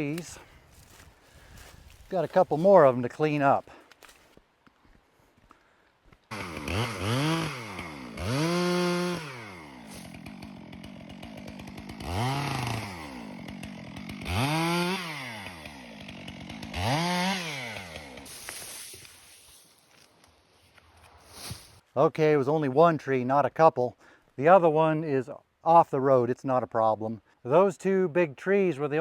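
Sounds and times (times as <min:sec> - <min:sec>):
chainsaw revving and idling: 0:06.3 - 0:19.1.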